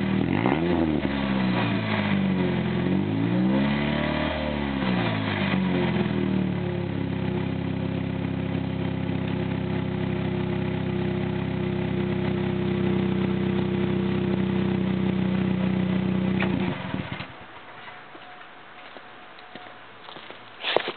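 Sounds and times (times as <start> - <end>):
unmuffled car engine idling: 5.5 - 20.3.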